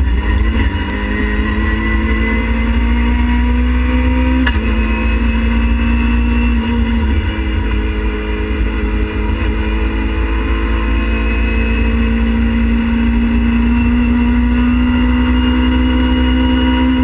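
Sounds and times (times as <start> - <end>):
low road rumble: 0.0 - 17.0
racing car engine revving: 0.0 - 17.0.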